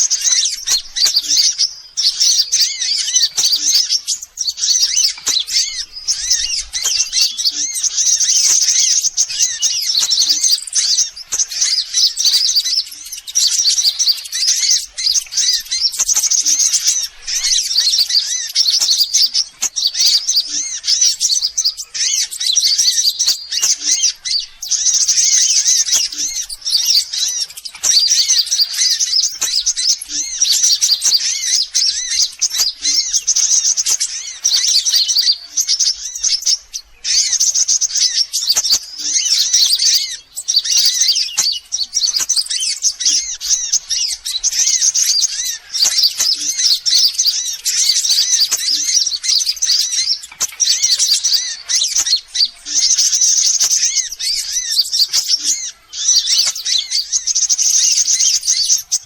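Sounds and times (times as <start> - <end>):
bird chirping and twittering: 0.0 - 59.0.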